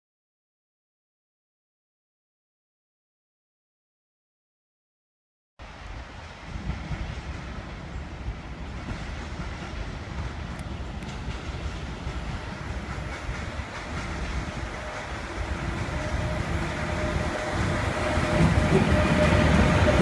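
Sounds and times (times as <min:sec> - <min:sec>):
train rumbling on tracks: 0:05.6 - 0:20.0
steady high tone: 0:15.3 - 0:20.0.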